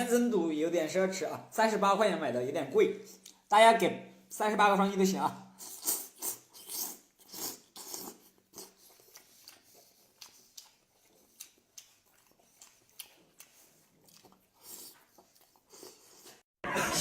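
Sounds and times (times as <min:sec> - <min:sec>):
wet mouth clicks: 0:05.6 - 0:15.4
chewing crunches: 0:05.6 - 0:16.4.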